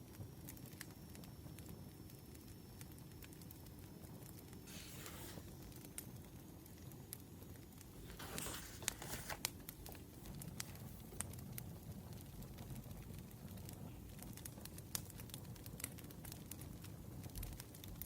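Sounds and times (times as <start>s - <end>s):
wood fire crackling: 0.0s - 18.0s
paper rustling: 4.7s - 5.5s, 8.0s - 9.5s.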